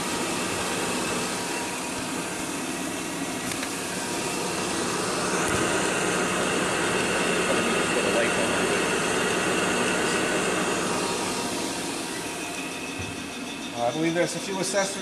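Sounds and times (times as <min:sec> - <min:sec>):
grinding machine whirring: 0:00.0 - 0:15.0.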